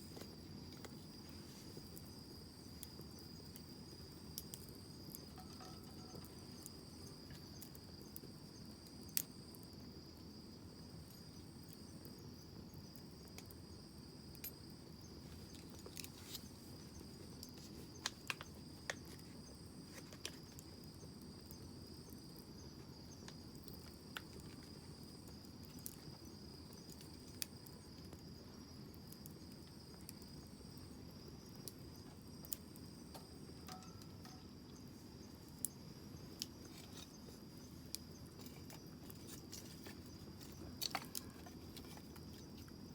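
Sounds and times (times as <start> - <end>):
insect trill: 0.0 - 42.9
campfire crackling and popping: 1.8 - 9.7, 23.2 - 34.5.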